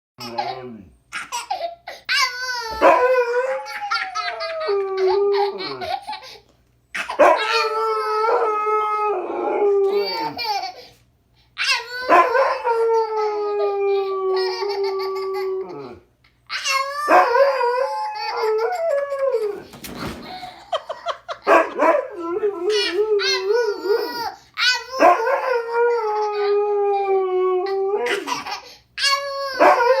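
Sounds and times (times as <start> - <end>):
dog howling: 2.7 - 5.9, 7.2 - 10.4, 11.9 - 16.0, 16.9 - 19.7, 21.5 - 28.3, 29.4 - 30.0
small child laughing: 3.6 - 6.4, 9.9 - 10.9, 14.3 - 17.1, 18.2 - 21.8, 22.5 - 25.1, 28.0 - 30.0
dog yelping: 7.0 - 7.6.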